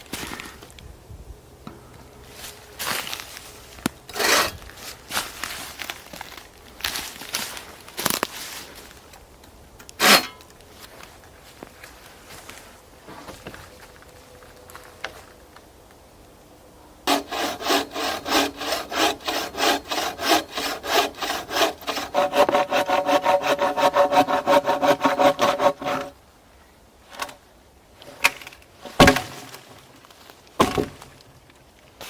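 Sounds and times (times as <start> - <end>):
hand saw cutting wood: 4.1 - 4.7, 10.0 - 10.4, 17.1 - 26.2.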